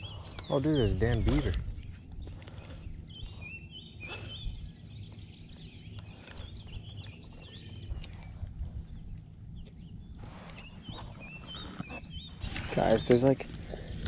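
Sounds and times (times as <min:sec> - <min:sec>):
songbirds chirping and warbling: 0:00.0 - 0:14.0
low rumble: 0:00.9 - 0:10.4.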